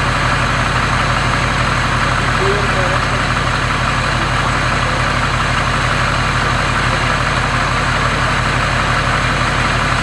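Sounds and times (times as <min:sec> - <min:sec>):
diesel engine idling rumble: 0:00.0 - 0:10.0.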